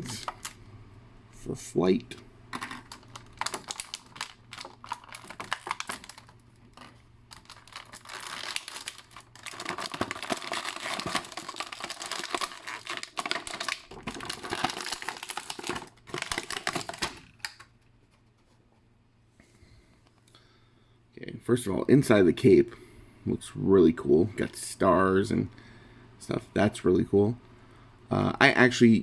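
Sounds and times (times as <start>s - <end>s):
plastic packaging crinkling: 2.5s - 17.9s.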